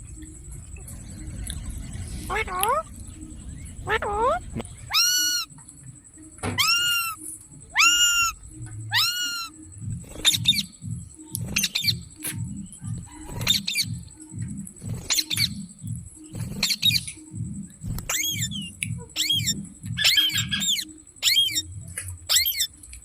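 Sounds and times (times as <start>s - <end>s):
low pulsing beat: 0.0s - 23.0s
parrot calling and squawking: 2.1s - 5.6s, 6.5s - 10.7s, 11.6s - 12.3s, 13.0s - 13.9s, 15.0s - 15.6s, 16.6s - 17.1s, 18.0s - 21.7s, 22.3s - 22.7s.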